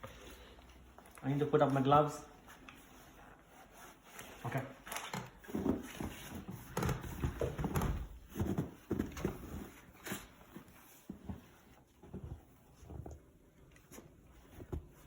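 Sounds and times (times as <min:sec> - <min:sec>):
rustling of gear handling: 0:00.3 - 0:15.0
knocks and thumps: 0:05.5 - 0:09.6.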